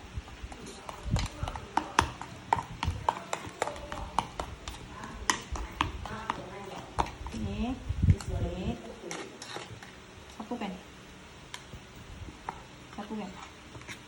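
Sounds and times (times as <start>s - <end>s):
utensil tapping against a bowl: 0.8s - 7.2s.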